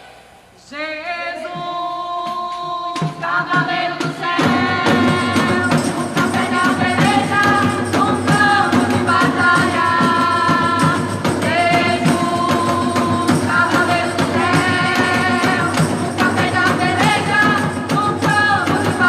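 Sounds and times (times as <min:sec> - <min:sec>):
worship band playing: 0:00.0 - 0:19.0.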